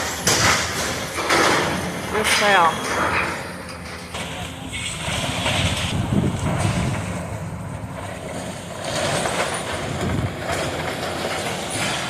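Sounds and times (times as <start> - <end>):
demolition machine engine: 0.0 - 12.0
debris crunching and crashing: 8.0 - 12.0.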